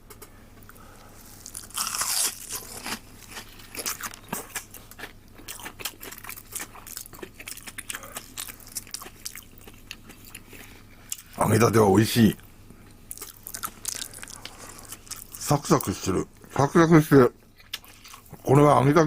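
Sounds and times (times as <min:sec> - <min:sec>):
crunchy bites and chewing: 0:01.2 - 0:11.3, 0:13.1 - 0:15.9.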